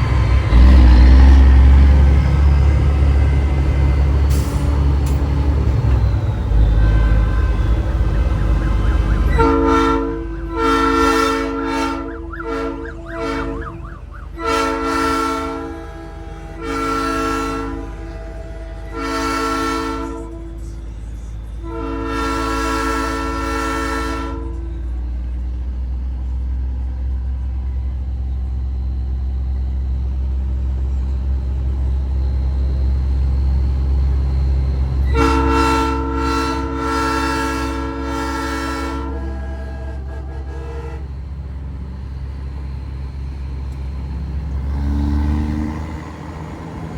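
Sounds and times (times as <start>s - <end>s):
train horn blasts: 0.0s - 25.1s, 35.0s - 41.3s
low truck engine drone: 0.0s - 46.9s.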